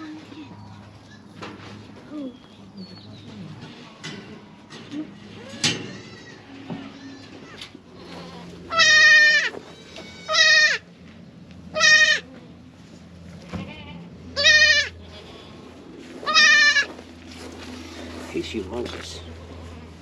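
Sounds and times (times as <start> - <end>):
goat bleating: 5.3 - 10.9, 11.7 - 12.3, 13.3 - 15.6, 16.2 - 17.0.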